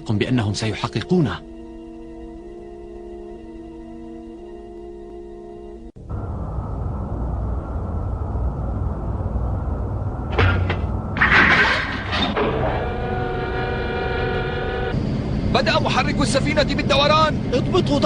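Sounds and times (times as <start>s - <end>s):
spaceship engine rumble: 6.0s - 18.0s
pitched machine hum: 12.0s - 17.8s.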